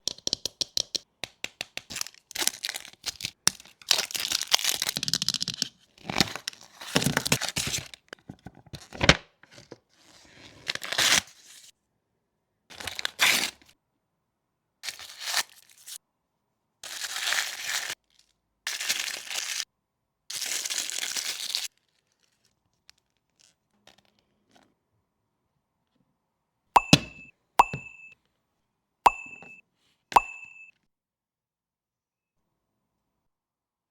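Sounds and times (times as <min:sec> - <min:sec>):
plastic packaging tearing and crinkling: 0:01.9 - 0:08.0, 0:10.4 - 0:11.5, 0:12.7 - 0:13.6, 0:16.8 - 0:19.6, 0:20.3 - 0:23.6.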